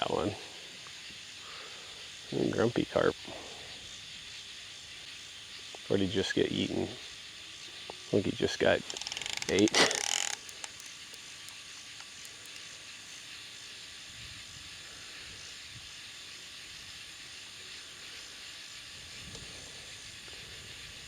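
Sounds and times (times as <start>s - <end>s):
high outdoor hiss: 0.0s - 21.0s.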